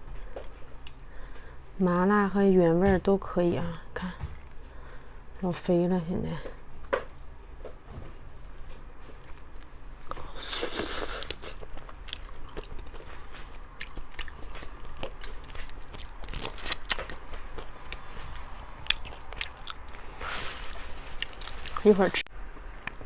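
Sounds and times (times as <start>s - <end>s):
person chewing shellfish: 0.2s - 1.6s, 7.1s - 20.2s, 21.1s - 21.8s.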